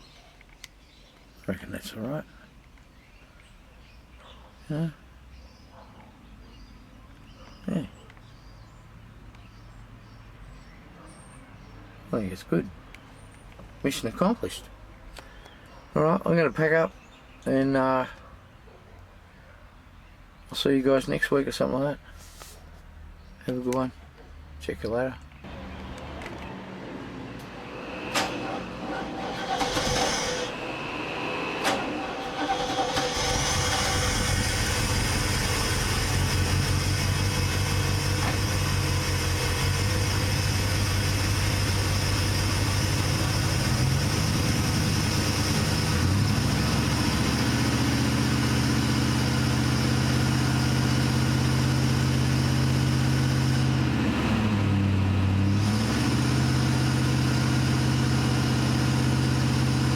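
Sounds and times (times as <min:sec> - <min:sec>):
car engine starting and idling: 0:25.4 - 0:59.9.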